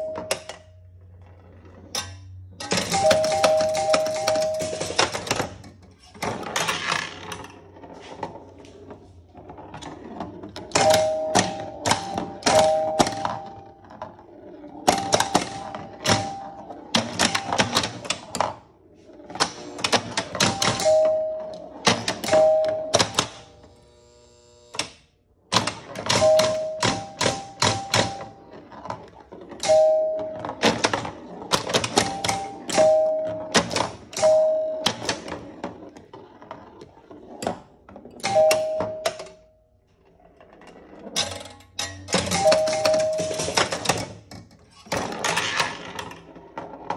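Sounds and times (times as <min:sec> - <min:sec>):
pinball machine clacking: 0:00.0 - 0:00.7, 0:01.8 - 0:07.5, 0:09.7 - 0:18.6, 0:19.3 - 0:23.6, 0:25.5 - 0:39.5, 0:40.4 - 0:46.9
two-note ringing tones: 0:20.8 - 0:23.1, 0:29.6 - 0:30.6, 0:32.1 - 0:33.6, 0:34.2 - 0:35.0.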